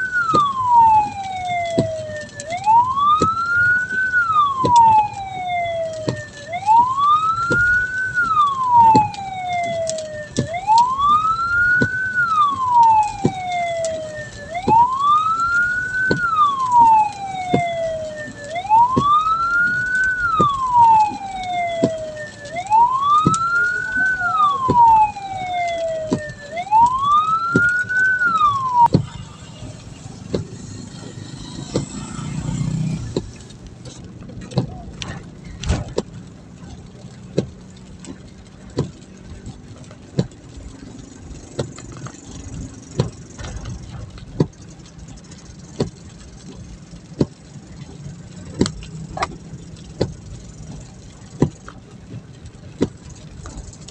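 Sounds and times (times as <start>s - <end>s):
electronic siren wailing: 0.0s - 33.6s.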